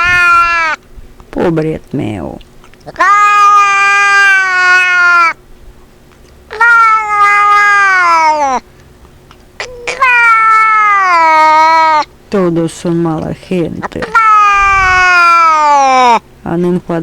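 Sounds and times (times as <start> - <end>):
cat meowing: 0.0 - 0.8, 2.8 - 5.4, 6.5 - 8.6, 9.6 - 12.1, 13.8 - 16.2.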